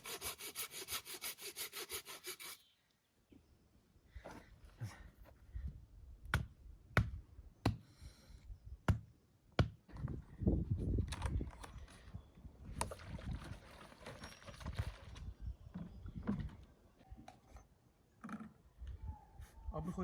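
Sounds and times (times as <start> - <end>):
rustling and handling of wood: 9.9 - 18.9.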